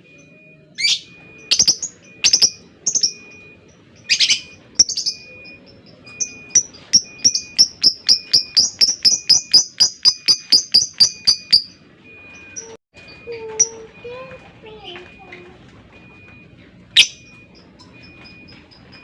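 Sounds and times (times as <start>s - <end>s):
lovebird sharp high chirps: 0.8s - 11.8s, 17.0s - 17.3s.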